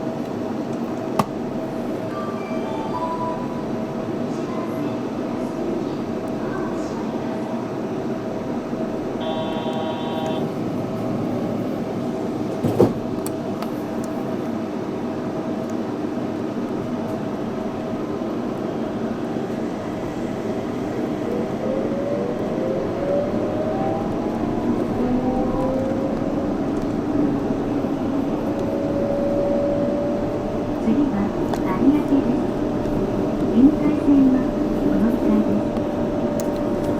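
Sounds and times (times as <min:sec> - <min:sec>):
train rumble with motor whine: 0:03.7 - 0:36.9
brief pitched tone: 0:09.2 - 0:10.5.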